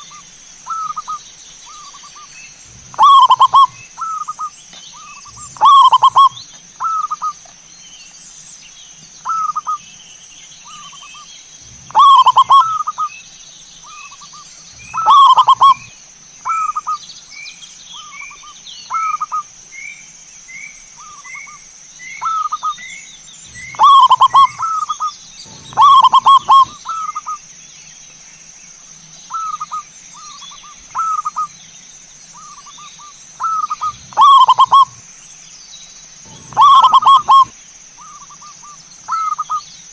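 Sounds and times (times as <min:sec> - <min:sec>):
doves cooing: 0:00.0 - 0:07.4, 0:10.7 - 0:13.1, 0:13.9 - 0:17.0, 0:23.4 - 0:27.4, 0:32.4 - 0:35.1, 0:36.2 - 0:39.6
small bird chirping: 0:00.0 - 0:39.9
steady high-pitched tone: 0:23.5 - 0:24.9, 0:25.5 - 0:26.8, 0:33.5 - 0:35.0, 0:36.3 - 0:37.5.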